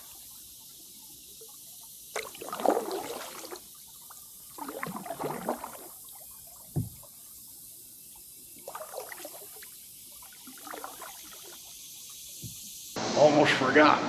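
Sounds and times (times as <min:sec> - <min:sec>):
kayak paddle strokes in water: 0:00.0 - 0:13.0
water dripping from paddle: 0:00.0 - 0:13.0
low thump: 0:06.7 - 0:07.1.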